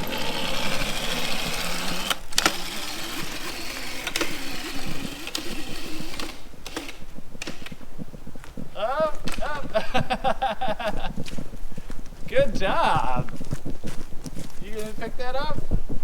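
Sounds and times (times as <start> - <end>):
electric motor whining: 0.0 - 10.2.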